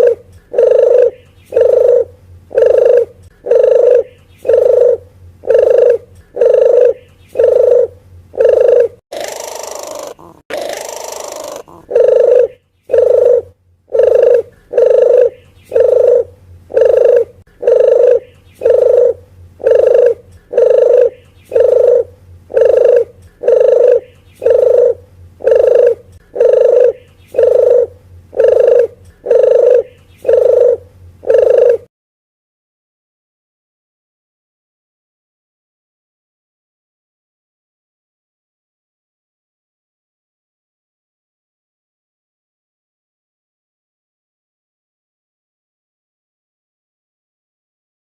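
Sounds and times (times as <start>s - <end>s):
dove cooing: 0.0s - 31.9s.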